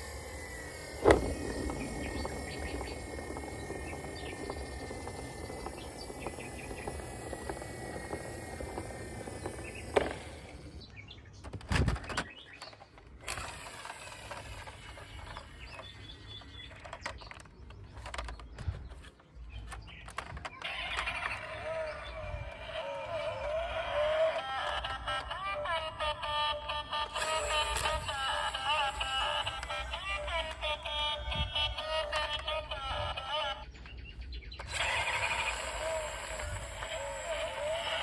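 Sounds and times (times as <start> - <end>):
birds chirping: 0.0 - 38.0
scattered clicks: 27.0 - 38.0.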